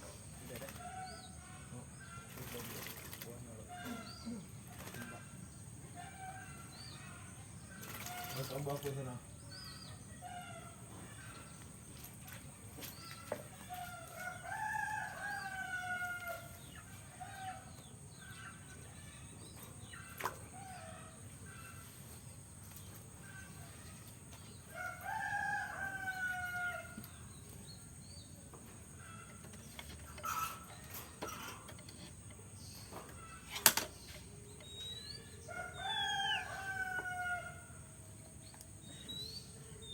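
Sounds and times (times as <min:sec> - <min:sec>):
rooster crowing: 0:13.8 - 0:17.7, 0:24.7 - 0:27.0, 0:35.4 - 0:38.0.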